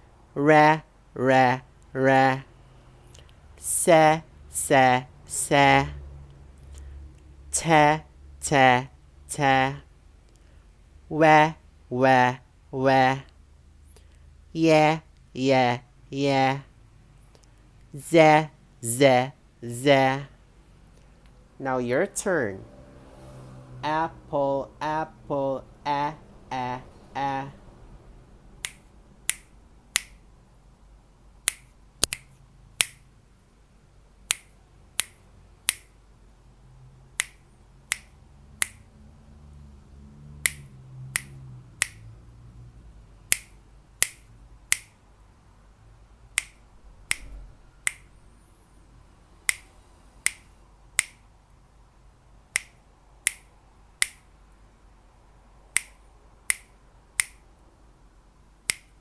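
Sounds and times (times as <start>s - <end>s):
finger snaps: 28.6s - 30.2s, 31.5s - 33.0s, 34.3s - 35.9s, 37.2s - 38.8s, 40.4s - 42.1s, 43.3s - 45.0s, 46.4s - 48.1s, 49.5s - 51.2s, 52.6s - 54.2s, 55.8s - 57.4s, 58.7s - 59.0s.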